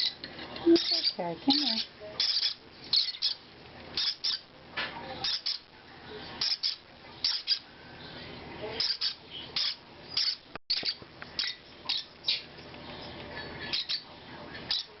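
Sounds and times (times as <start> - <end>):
baby parrots begging calls: 0.0 - 3.4, 4.0 - 4.5, 5.2 - 5.6, 6.4 - 7.7, 8.8 - 14.1, 14.7 - 15.0.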